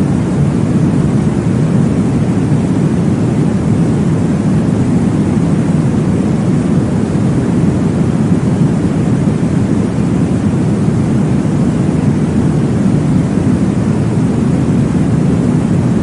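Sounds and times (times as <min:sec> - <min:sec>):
deep white noise whooshing: 0:00.0 - 0:16.0.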